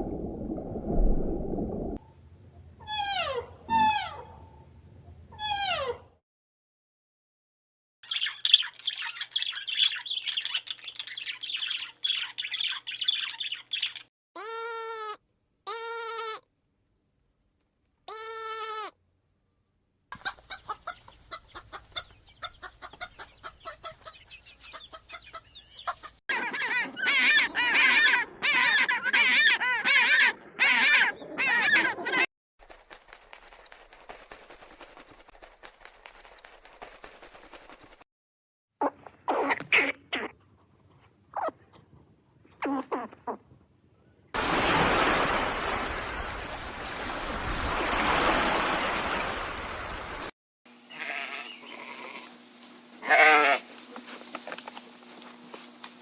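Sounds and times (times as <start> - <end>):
high bird chirping: 8.0 - 14.1, 20.2 - 26.2
loud clear bird calls: 8.0 - 14.1, 20.2 - 32.2.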